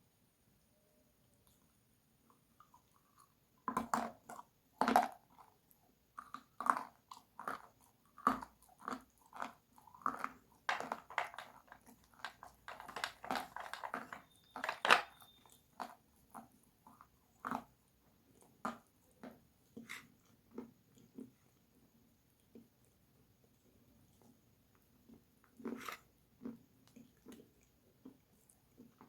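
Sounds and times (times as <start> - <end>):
crunchy bites and chewing: 2.6 - 17.7.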